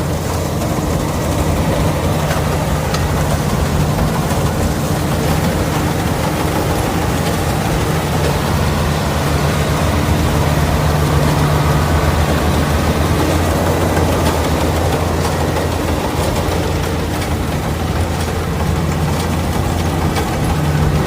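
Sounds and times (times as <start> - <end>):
harvester engine humming: 0.0 - 21.0.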